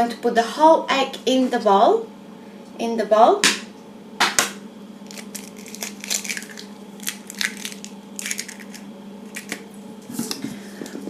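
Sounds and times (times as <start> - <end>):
egg shell cracking: 5.0 - 9.7.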